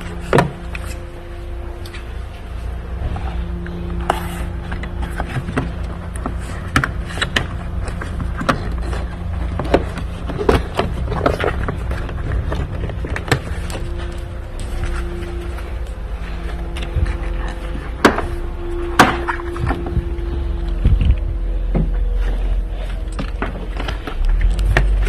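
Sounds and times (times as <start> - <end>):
steady low hum: 0.0 - 25.0
tools and parts clicking and knocking: 22.8 - 25.0.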